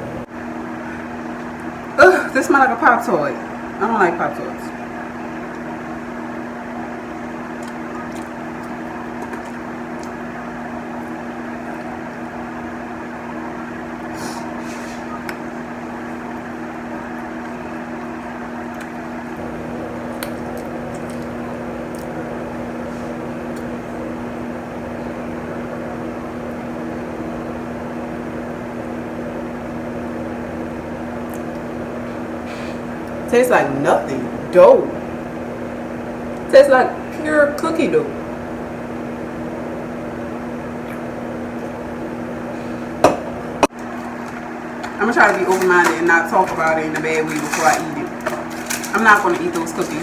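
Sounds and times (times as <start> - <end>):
mechanical hum of motor: 0.0 - 50.0.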